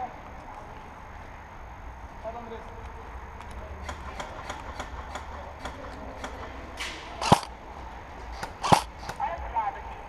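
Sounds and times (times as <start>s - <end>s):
airsoft guns firing: 3.8s - 7.6s, 8.4s - 9.3s.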